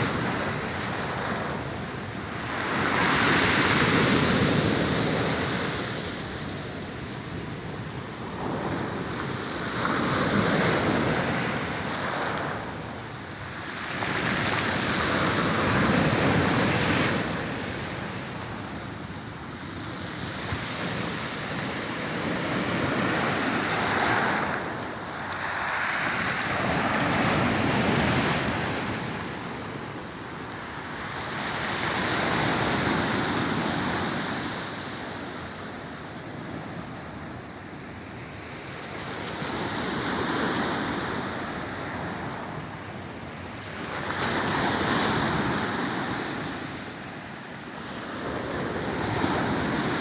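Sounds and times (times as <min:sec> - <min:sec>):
small waves breaking on shore: 0:00.0 - 0:37.5.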